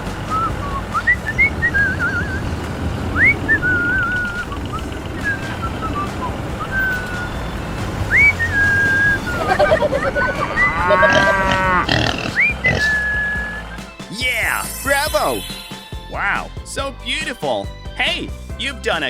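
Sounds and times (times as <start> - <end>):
low motor rumble: 0.0 - 13.8
person whistling a tune: 0.3 - 2.5, 3.2 - 11.0, 12.4 - 16.1.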